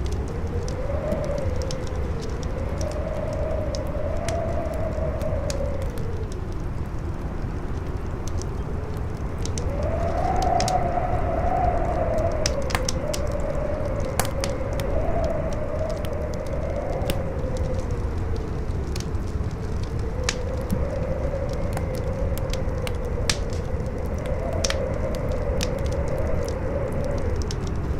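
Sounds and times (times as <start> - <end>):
howling wind whistle: 0.0 - 27.9
wood fire crackling: 0.0 - 27.9.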